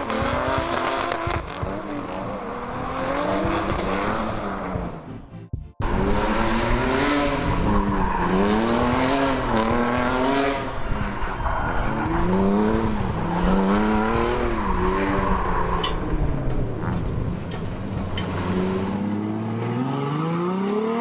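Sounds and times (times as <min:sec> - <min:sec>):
car engine revving: 0:00.0 - 0:21.0
tyres screeching: 0:07.6 - 0:19.2.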